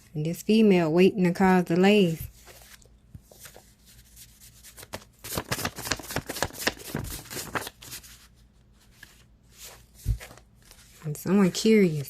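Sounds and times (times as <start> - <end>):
cards being shuffled: 2.0 - 8.2.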